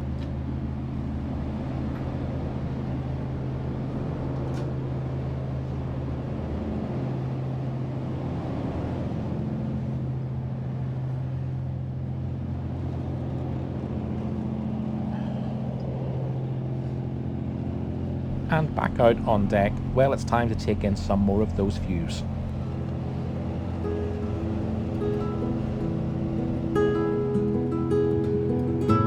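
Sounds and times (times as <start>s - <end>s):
ferry engines droning: 0.0s - 29.0s.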